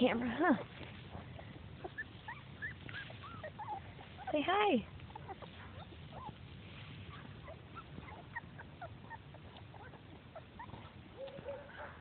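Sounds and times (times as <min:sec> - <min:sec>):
puppies squeaking and whimpering: 0:00.0 - 0:12.0.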